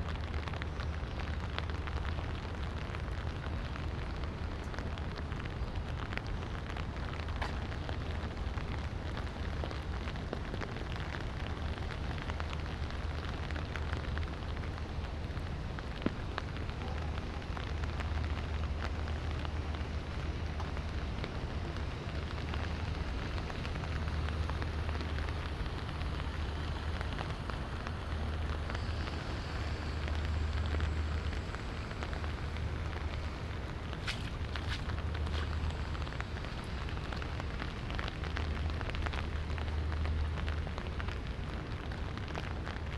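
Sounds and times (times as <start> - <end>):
light rain falling: 0.0 - 42.9
low rumble: 17.6 - 41.2.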